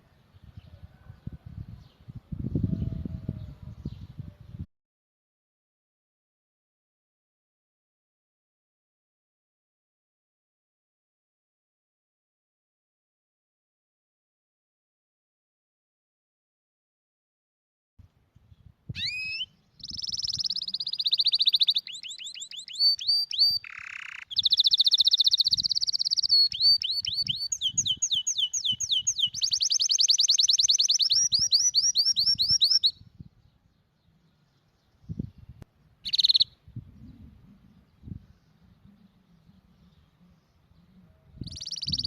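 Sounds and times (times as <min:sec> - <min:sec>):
canary singing trills: 0:19.0 - 0:33.0, 0:36.0 - 0:36.6, 0:37.9 - 0:42.0.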